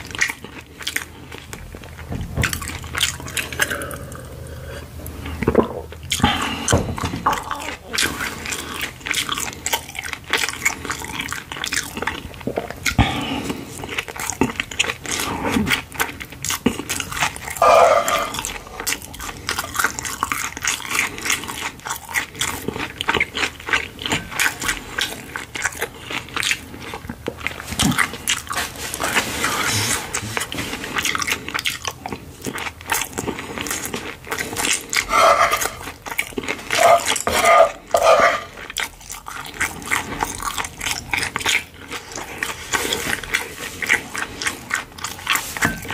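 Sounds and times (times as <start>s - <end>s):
close chewing and smacking: 0.0s - 45.9s
throat sounds: 2.2s - 8.9s, 12.5s - 13.8s, 17.6s - 19.0s, 34.9s - 36.0s, 36.6s - 38.7s.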